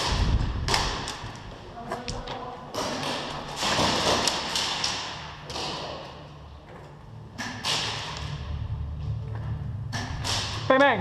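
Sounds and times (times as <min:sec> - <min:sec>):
low rumble: 0:08.0 - 0:11.0.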